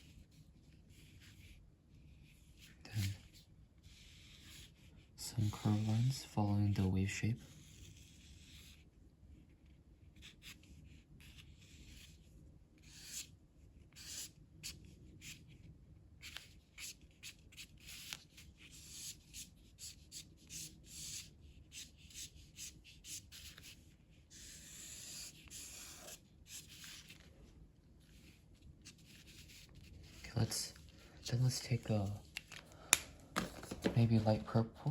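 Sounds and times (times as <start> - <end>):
colouring tool scratching on paper: 0.0 - 6.2, 7.5 - 8.9, 13.9 - 15.4, 16.2 - 27.3.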